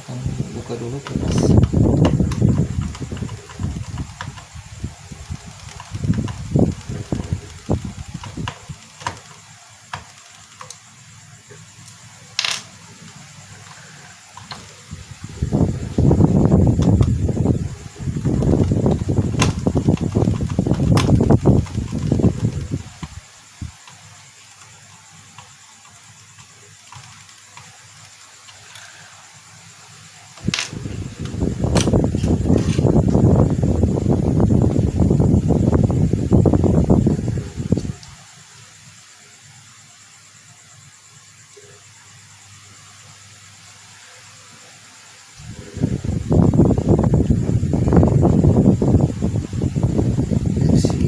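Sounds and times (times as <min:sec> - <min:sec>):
quiet hiss: 0:00.0 - 0:51.0
tools and plastic parts clicking: 0:05.2 - 0:10.9, 0:11.9 - 0:14.8, 0:18.3 - 0:29.0.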